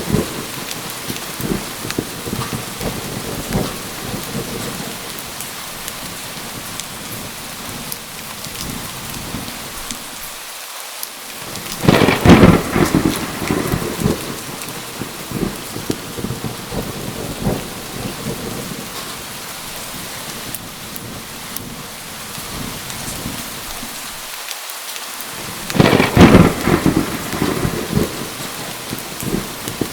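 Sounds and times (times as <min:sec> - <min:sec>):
thunderclap rumbling: 0:00.0 - 0:10.0, 0:11.4 - 0:24.0, 0:25.3 - 0:29.9
steady rain falling: 0:00.0 - 0:29.9.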